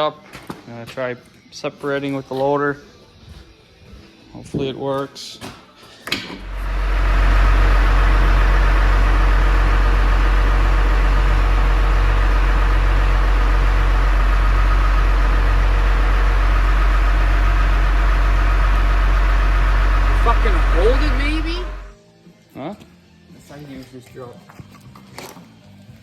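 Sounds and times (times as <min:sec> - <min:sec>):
tractor engine running: 0:06.4 - 0:22.0.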